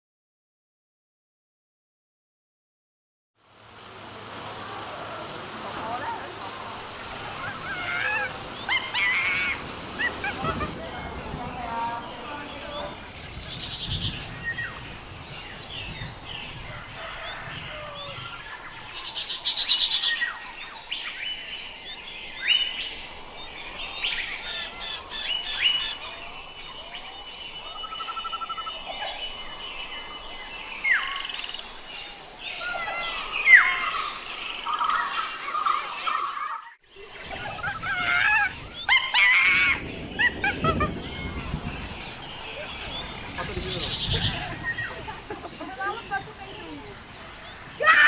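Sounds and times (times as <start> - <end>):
birds chirping and calling: 5.7 - 48.0
buzzy ticking bird call: 24.4 - 31.9
rapid high bird trill: 24.4 - 35.8.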